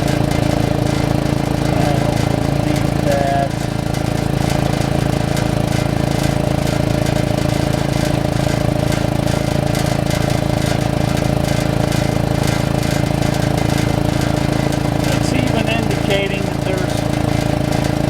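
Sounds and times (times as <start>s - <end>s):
air compressor pulsing hum: 0.0s - 18.0s.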